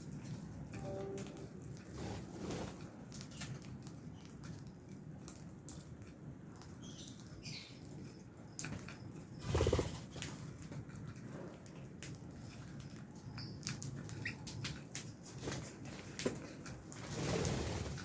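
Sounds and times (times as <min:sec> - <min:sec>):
birds clicking and scratching: 0:01.4 - 0:18.0
wings fluttering: 0:09.4 - 0:10.5, 0:16.9 - 0:18.0.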